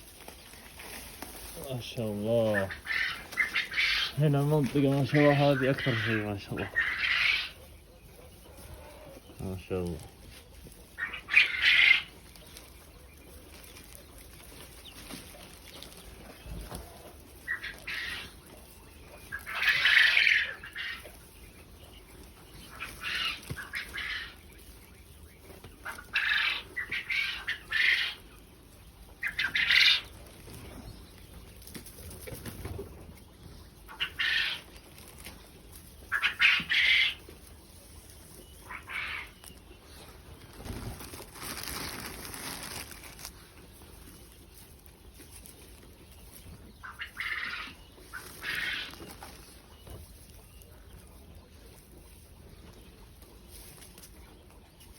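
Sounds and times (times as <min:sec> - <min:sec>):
quail harsh calls: 0:02.4 - 0:04.2, 0:05.1 - 0:07.6, 0:11.0 - 0:12.2, 0:19.3 - 0:21.1, 0:25.8 - 0:28.2, 0:29.2 - 0:30.1, 0:33.9 - 0:34.7, 0:36.1 - 0:37.2, 0:38.6 - 0:39.4, 0:46.8 - 0:49.2.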